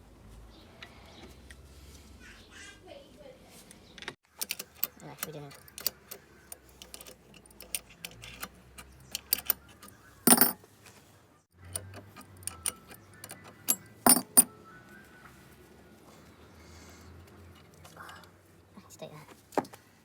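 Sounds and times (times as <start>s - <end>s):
metal parts clinking: 9.1s - 10.6s, 13.7s - 14.5s.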